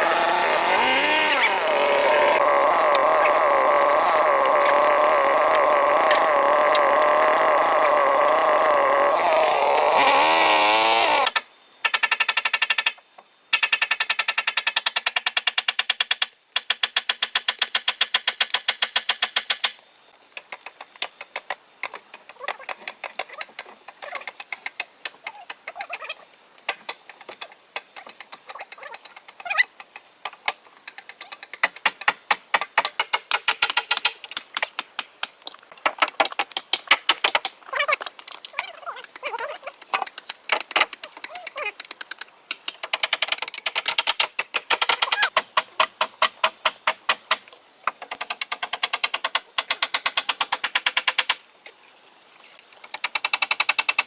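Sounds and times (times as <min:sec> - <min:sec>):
chainsaw running: 0:00.0 - 0:11.4
irregular tapping and clicking: 0:26.7 - 0:51.4.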